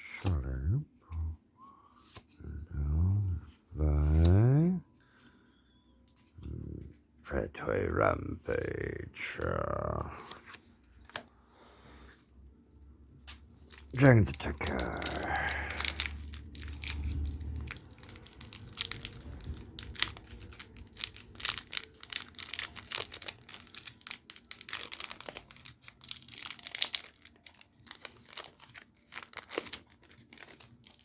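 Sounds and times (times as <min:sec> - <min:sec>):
foil wrapper tearing and crinkling: 0:13.6 - 0:31.0.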